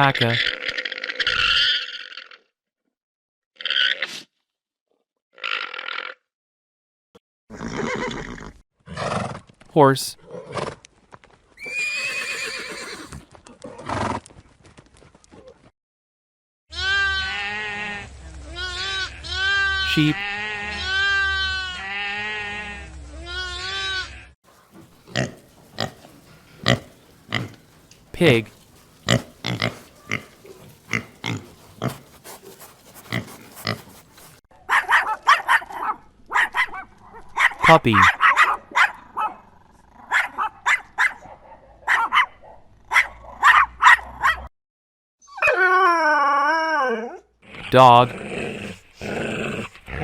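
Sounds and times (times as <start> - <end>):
horse whinnying: 7.5 - 9.4, 11.6 - 14.2
bleat: 16.7 - 27.6, 28.4 - 34.3
piglets grunting: 16.8 - 34.4, 47.5 - 50.0
piglets squealing: 18.6 - 22.6, 23.2 - 34.4.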